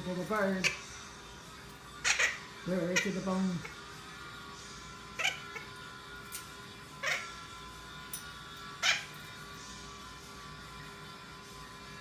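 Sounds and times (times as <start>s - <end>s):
macaw chirps: 2.0s - 2.4s, 5.2s - 5.7s
macaw meow-like calls: 2.0s - 3.8s, 5.2s - 5.7s, 7.0s - 7.4s, 8.8s - 9.2s.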